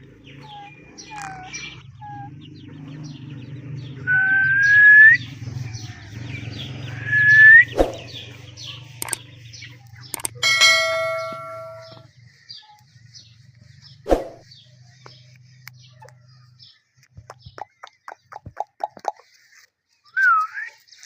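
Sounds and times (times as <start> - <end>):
parrot chirping: 0.3 - 2.5
ringing tone: 10.2 - 12.1.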